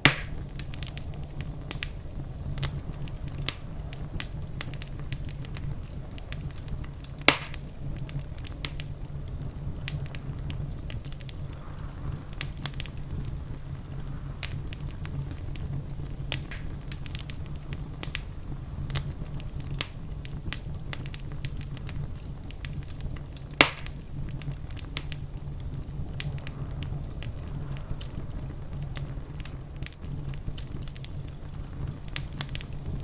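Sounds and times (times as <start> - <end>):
fireplace fire crackling: 0.0 - 33.0.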